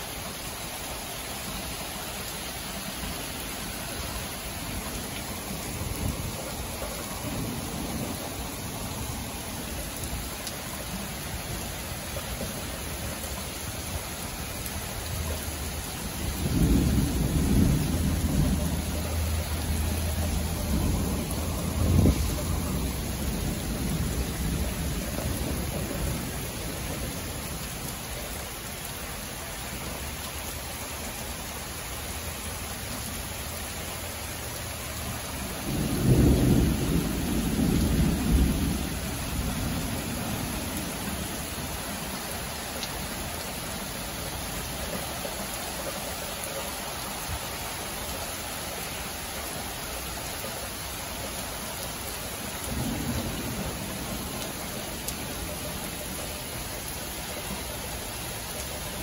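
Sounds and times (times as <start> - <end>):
steady rain falling: 0.0 - 59.0
thunder rumbling low: 16.2 - 27.1.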